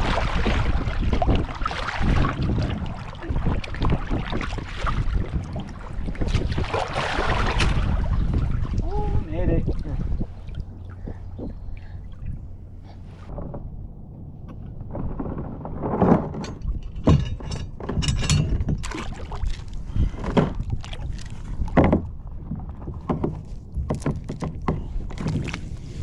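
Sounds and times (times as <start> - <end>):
low rumble: 7.3 - 18.9
knocks and clunks on kayak: 10.9 - 11.7, 13.0 - 25.8.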